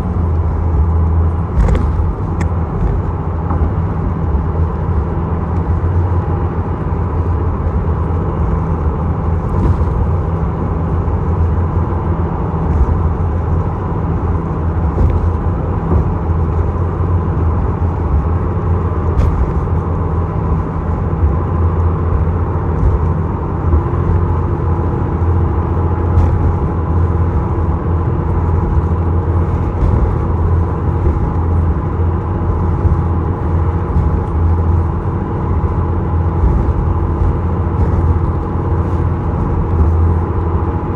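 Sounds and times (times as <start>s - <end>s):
ferry engine drone: 0.0s - 40.9s.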